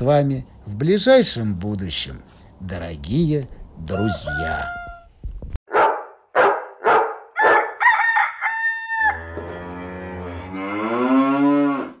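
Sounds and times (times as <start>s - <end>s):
rooster crowing: 3.9s - 5.1s, 7.4s - 9.8s
dog barking: 5.7s - 7.8s.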